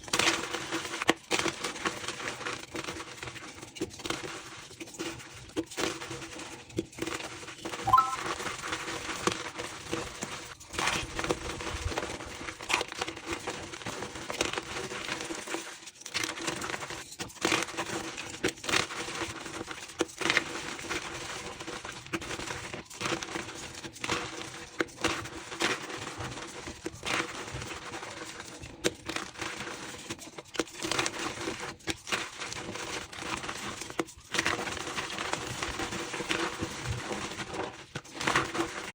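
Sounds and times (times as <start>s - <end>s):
short squeak: 7.9s - 8.2s.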